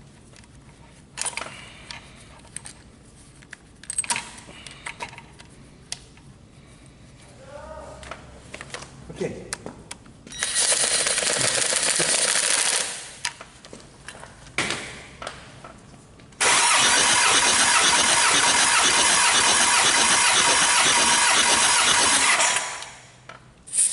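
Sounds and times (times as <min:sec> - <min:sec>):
diesel engine starter cranking: 0:16.4 - 0:23.0.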